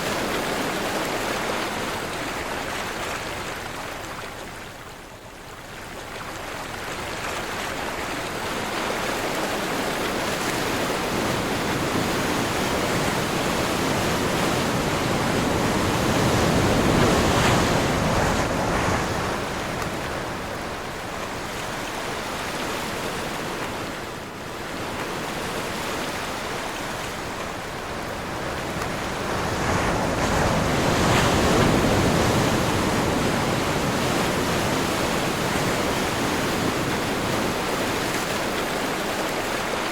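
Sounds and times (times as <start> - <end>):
sea waves breaking: 6.3 - 39.9
wind blowing: 10.5 - 38.6.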